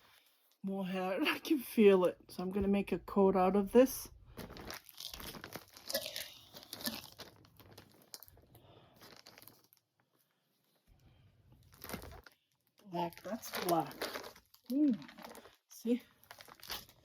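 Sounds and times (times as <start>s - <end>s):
plastic packaging crinkling: 4.3s - 10.2s, 11.5s - 17.0s.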